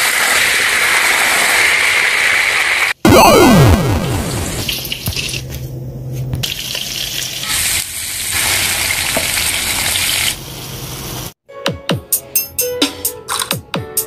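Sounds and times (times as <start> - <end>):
vegetables sizzling in hot oil: 0.0 - 2.9, 6.6 - 11.3.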